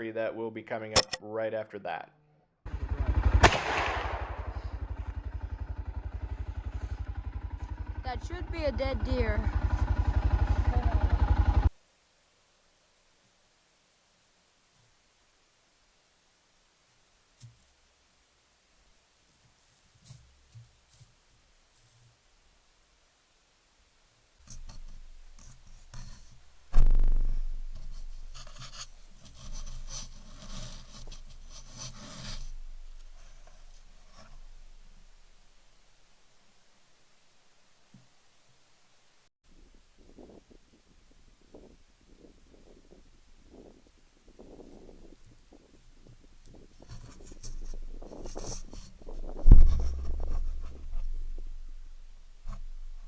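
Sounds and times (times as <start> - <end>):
low rumble: 2.7 - 11.7
rubbing and scraping: 24.4 - 35.4, 44.4 - 53.0.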